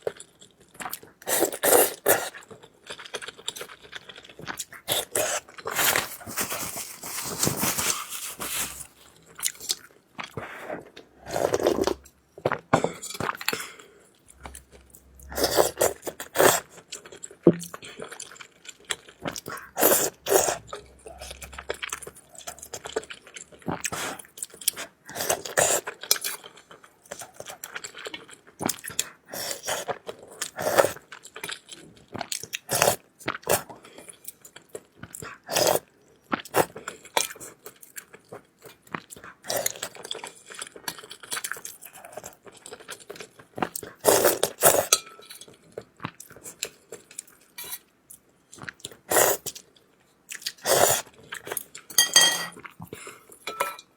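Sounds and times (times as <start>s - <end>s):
chewing and crunchy biting: 0.0s - 12.6s.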